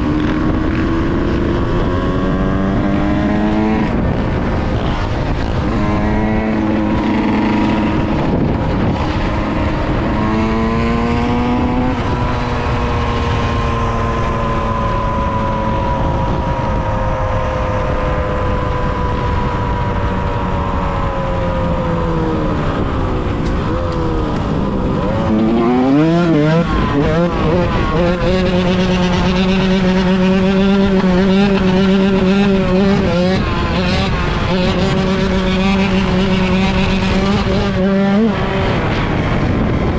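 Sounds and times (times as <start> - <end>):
dirt bike engine revving: 23.6 - 39.8.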